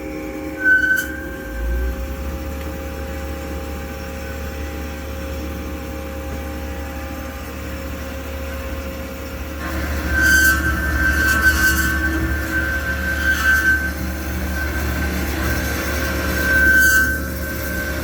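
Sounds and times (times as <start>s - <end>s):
short high squeal: 0.4s - 2.0s, 9.7s - 18.0s
bandsaw hum: 9.6s - 18.0s.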